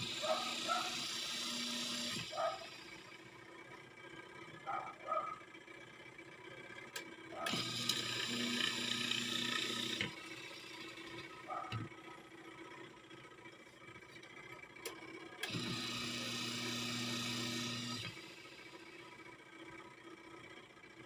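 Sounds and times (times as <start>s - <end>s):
wash motor humming: 0.0s - 3.1s.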